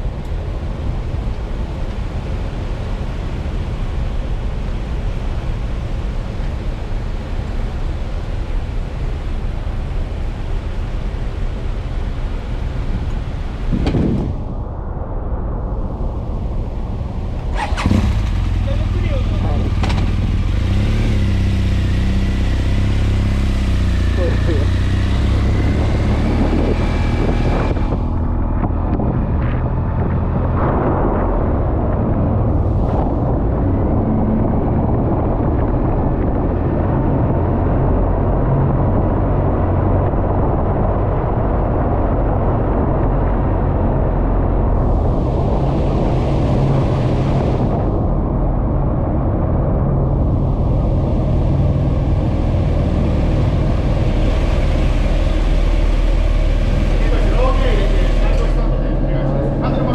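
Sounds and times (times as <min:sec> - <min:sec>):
engine rumbling: 0:00.0 - 0:59.9
wind buffeting microphone: 0:12.5 - 0:59.9
noisy hiss: 0:50.5 - 0:59.9.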